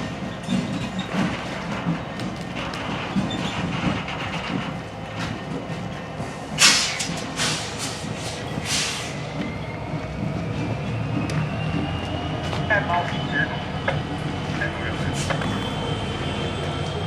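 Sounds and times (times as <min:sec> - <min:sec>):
train wheels clattering over rails: 0:00.0 - 0:17.0
loud bursts of hiss: 0:06.6 - 0:09.2.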